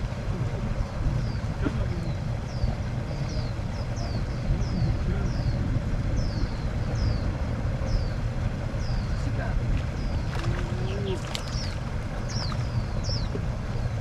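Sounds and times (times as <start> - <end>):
steady low rumble: 0.0 - 14.0
bird chirping: 9.9 - 13.9.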